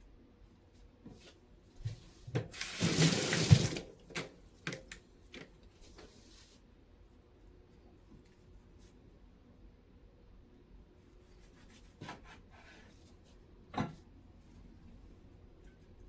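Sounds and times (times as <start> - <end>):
water splashing into sink: 2.4 - 4.0.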